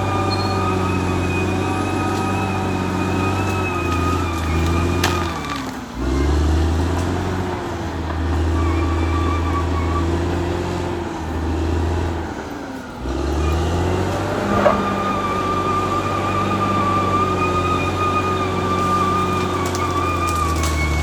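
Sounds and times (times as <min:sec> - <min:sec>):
bulldozer diesel engine running: 0:00.0 - 0:21.0
metal clank: 0:14.4 - 0:15.1.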